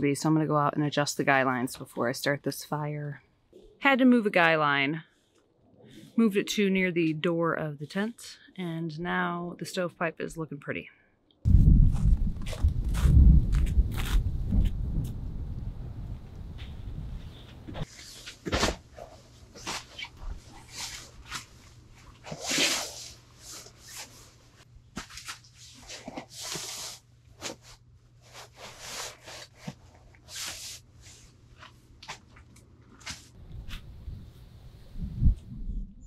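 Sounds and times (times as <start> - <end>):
wind rumble on microphone: 11.5 - 17.8, 33.4 - 36.0
camping gear rustling and crinkling: 16.6 - 33.9.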